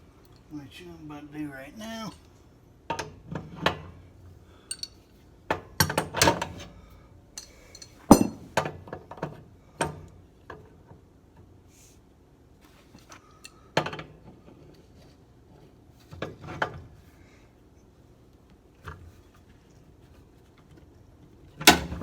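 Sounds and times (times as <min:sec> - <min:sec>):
hand tools knocking on metal: 0:08.1 - 0:08.6.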